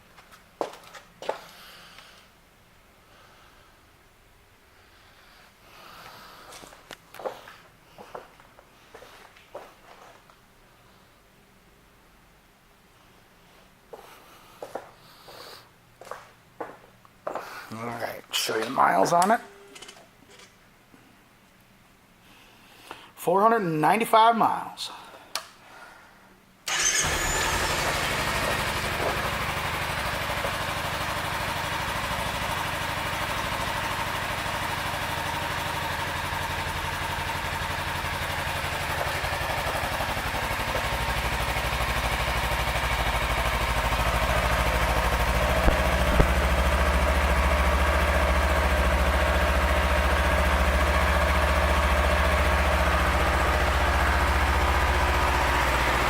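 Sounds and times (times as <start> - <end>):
motorcycle engine starting and idling: 26.7 - 56.0.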